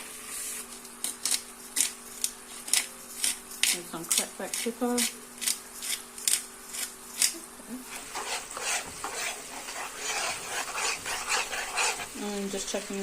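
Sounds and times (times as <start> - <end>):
pepper grinder scratching: 0.9 - 12.2
utensil scraping a pan: 1.3 - 12.8
sauce sizzling: 5.3 - 13.0.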